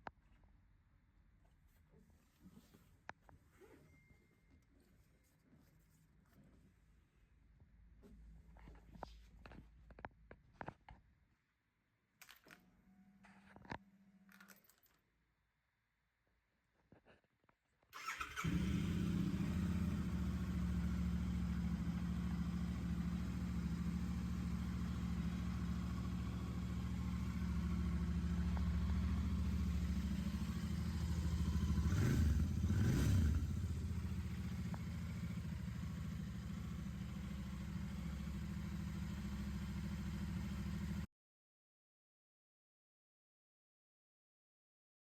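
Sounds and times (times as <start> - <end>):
motorcycle engine starting and idling: 18.0 - 41.1.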